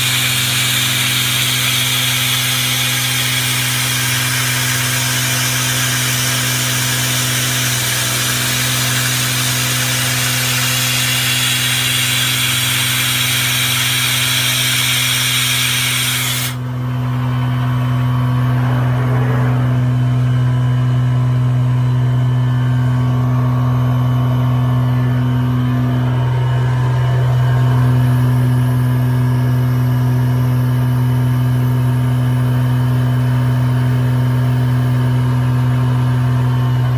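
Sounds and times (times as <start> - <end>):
router cutting wood: 0.0 - 21.2
low machine hum: 0.0 - 36.9.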